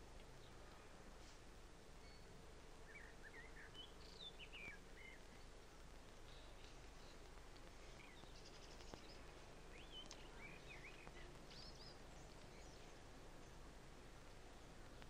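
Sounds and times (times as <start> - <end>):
faint birds chirping: 0.0 - 15.0
steady hiss: 0.0 - 15.0
faint click: 9.8 - 13.0.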